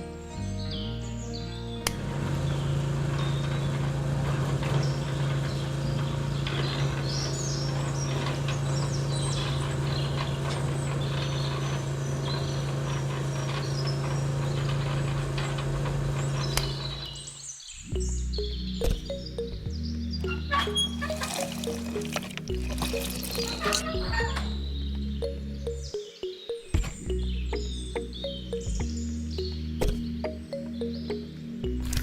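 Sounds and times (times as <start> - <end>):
birds chirping: 16.1 - 31.8.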